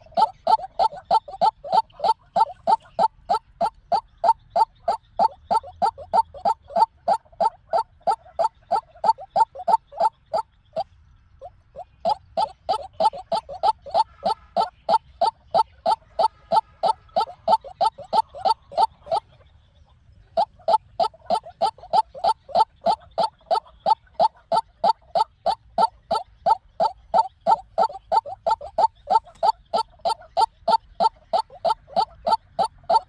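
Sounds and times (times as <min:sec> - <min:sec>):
bird calling harsh repeated notes: 0:00.0 - 0:10.5, 0:11.7 - 0:19.2, 0:20.4 - 0:33.0.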